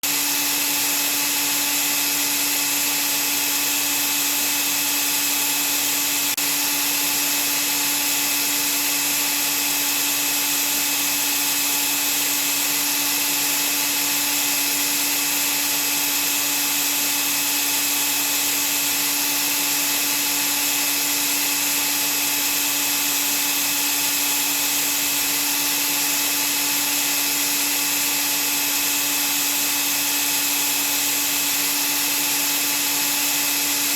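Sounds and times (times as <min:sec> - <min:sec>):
vacuum cleaner running: 0:00.0 - 0:33.9.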